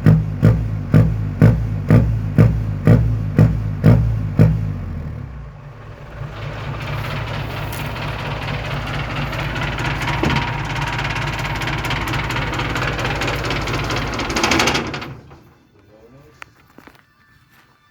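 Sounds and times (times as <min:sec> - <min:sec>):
engine running through exhaust: 0:00.0 - 0:15.6.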